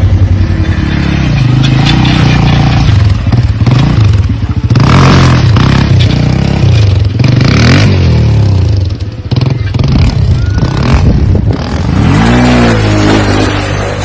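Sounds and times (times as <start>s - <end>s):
dirt bike engine revving: 0.0s - 14.0s
harsh rush of noise: 9.7s - 14.0s.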